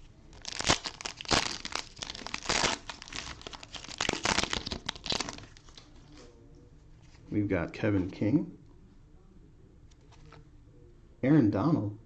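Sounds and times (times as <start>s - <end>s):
cellophane wrapper crinkling and tearing: 0.4s - 6.2s.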